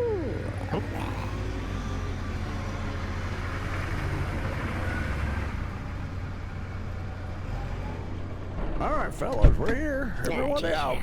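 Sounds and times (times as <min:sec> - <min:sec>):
road noise: 0:00.7 - 0:08.6.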